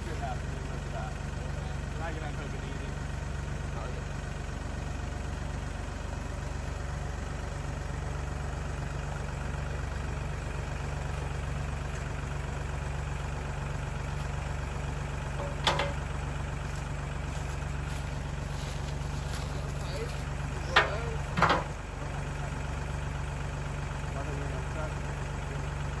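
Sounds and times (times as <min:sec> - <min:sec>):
engine idling: 0:00.0 - 0:26.0
sharp metal clank: 0:15.4 - 0:16.0.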